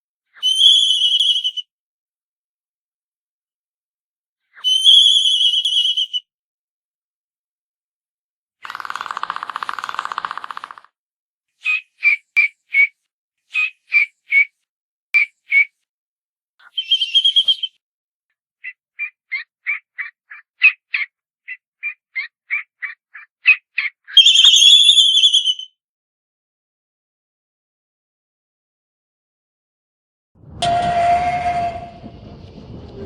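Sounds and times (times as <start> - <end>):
albatross calls: 18.6 - 24.5.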